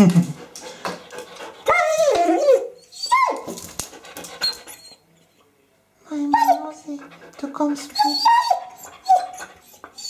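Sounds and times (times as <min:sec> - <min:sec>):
dog yowling: 0:01.6 - 0:03.6, 0:07.9 - 0:10.0.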